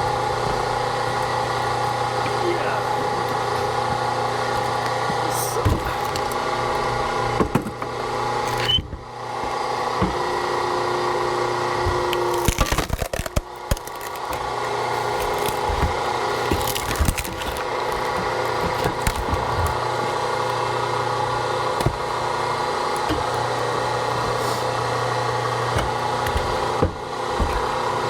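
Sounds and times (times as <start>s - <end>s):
firewood cracking and splintering: 12.0s - 20.6s.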